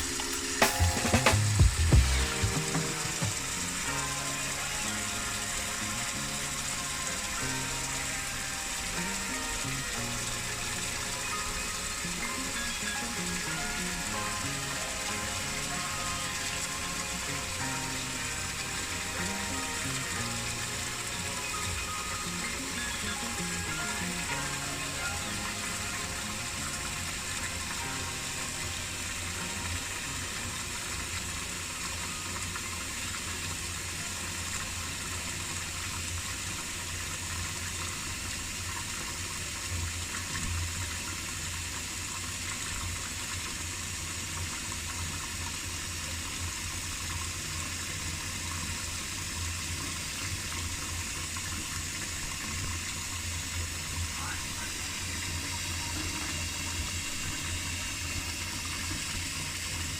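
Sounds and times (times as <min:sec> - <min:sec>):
faucet running into a sink: 0:02.2 - 0:59.9.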